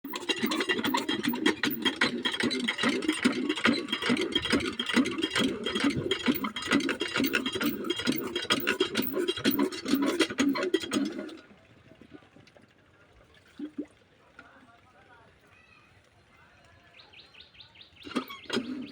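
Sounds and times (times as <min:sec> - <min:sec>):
diesel pump engine knocking: 0:00.0 - 0:11.1.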